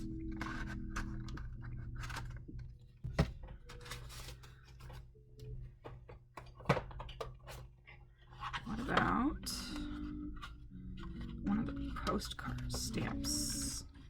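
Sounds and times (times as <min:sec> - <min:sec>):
faint background music: 0:00.0 - 0:14.0
paper rustling: 0:03.1 - 0:05.1.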